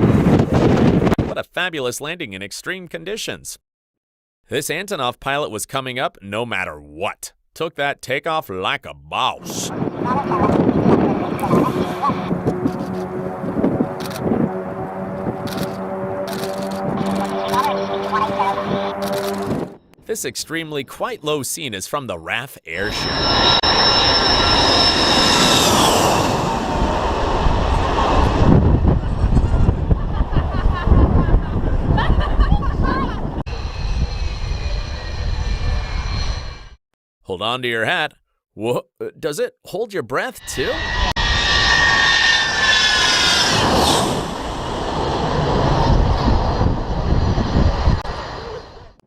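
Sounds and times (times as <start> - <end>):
wind buffeting microphone: 0.0 - 1.3, 9.6 - 17.2, 26.8 - 35.9, 45.3 - 48.1
jet engine roar: 9.4 - 20.0, 22.7 - 36.8, 40.4 - 49.0.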